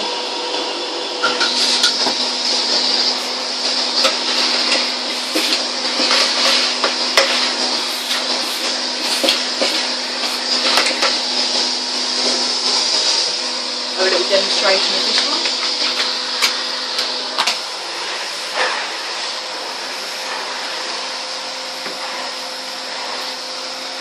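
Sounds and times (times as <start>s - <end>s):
vacuum cleaner running: 0.0s - 24.0s
person talking: 14.0s - 15.5s.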